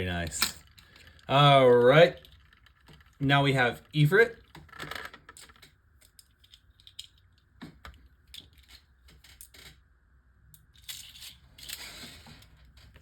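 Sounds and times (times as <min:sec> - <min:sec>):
small plastic parts clicking: 0:00.3 - 0:03.2, 0:04.4 - 0:09.7.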